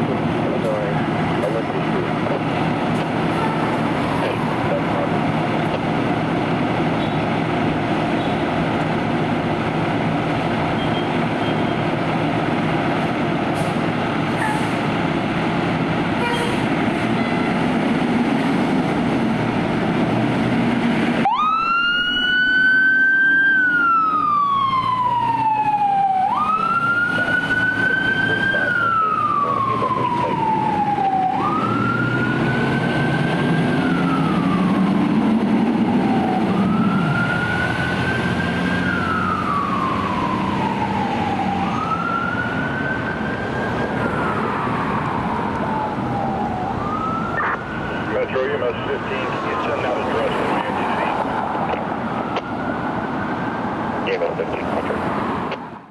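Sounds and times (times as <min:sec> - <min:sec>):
fire truck siren wailing: 0:00.0 - 0:55.9.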